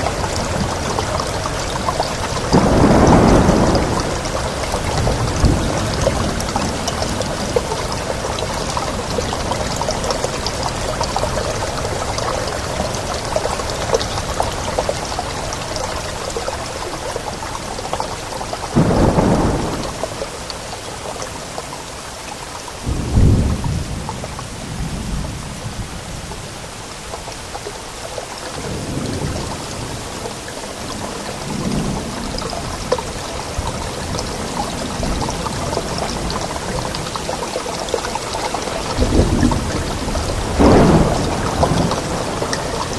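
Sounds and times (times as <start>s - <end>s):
thunder rumbling: 0.0s - 17.3s, 18.7s - 20.3s, 38.6s - 42.9s
steady rain: 0.0s - 42.9s.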